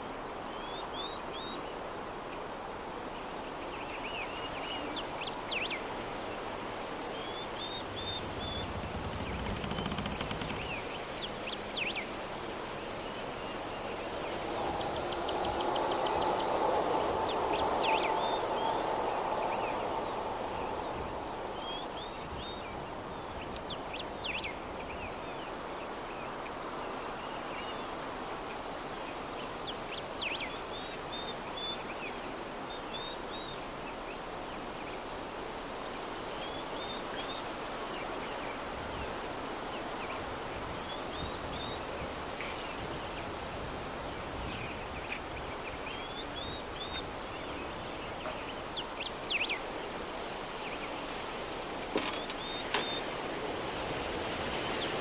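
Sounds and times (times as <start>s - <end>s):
soft breeze: 0.0s - 55.0s
small birds chirping: 3.8s - 25.4s, 44.1s - 53.6s.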